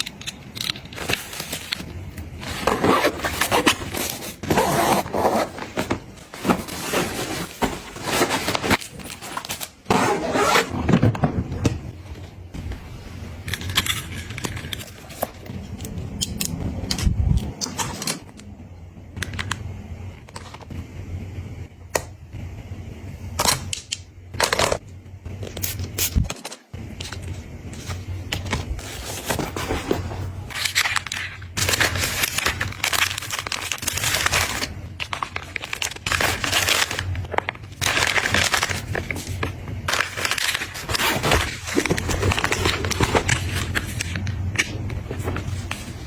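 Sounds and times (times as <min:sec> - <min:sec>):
plastic packaging crinkling: 0:28.4 - 0:44.2.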